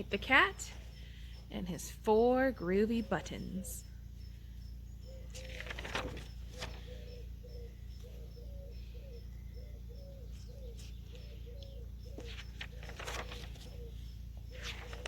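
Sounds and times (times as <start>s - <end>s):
bird cooing: 4.9s - 15.0s
rustling: 5.3s - 6.9s, 12.2s - 13.9s, 14.5s - 15.0s.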